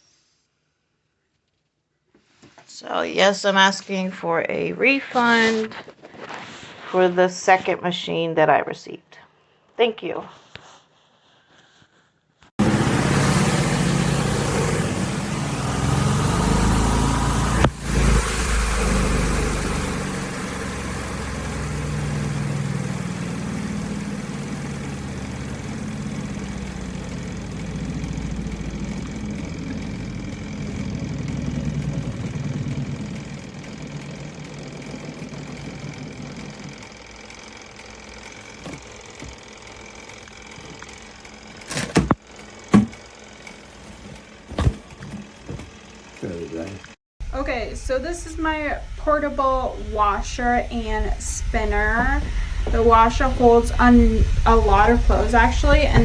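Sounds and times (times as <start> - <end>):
washing machine motor churning: 12.6 - 56.0.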